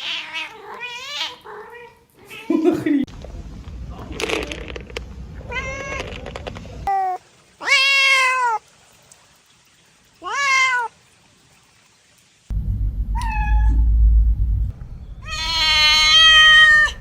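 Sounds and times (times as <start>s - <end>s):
cat meowing: 5.5s - 6.1s, 15.2s - 17.0s.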